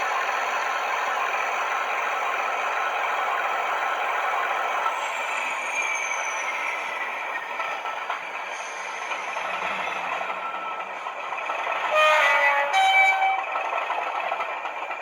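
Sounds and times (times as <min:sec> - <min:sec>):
model diesel engine sound: 0:00.0 - 0:15.0
two-tone horn: 0:11.9 - 0:13.6.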